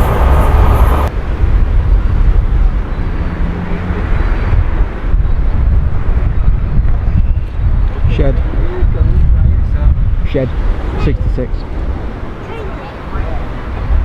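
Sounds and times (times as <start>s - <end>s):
passing train rolling: 0.0s - 1.5s
wind rumbling on microphone: 0.0s - 14.0s.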